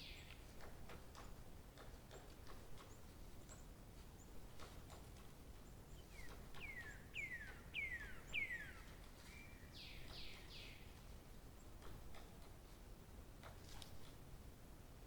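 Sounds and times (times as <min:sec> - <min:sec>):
bird singing: 0:00.0 - 0:00.4, 0:05.9 - 0:10.8
faint background noise: 0:00.0 - 0:15.0.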